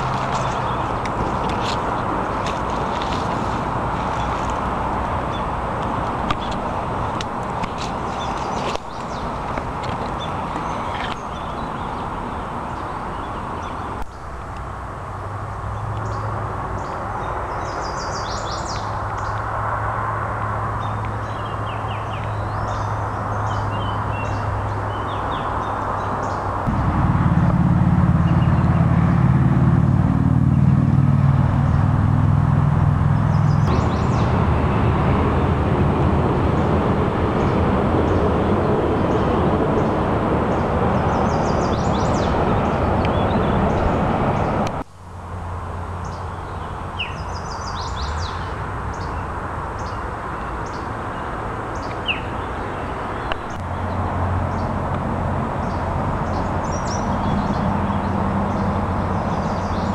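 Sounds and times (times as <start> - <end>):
small birds chirping: 0.0 - 4.6, 6.3 - 14.4, 33.2 - 34.4
steady rushing noise: 0.0 - 15.8, 26.4 - 46.1
low drone: 26.6 - 46.2.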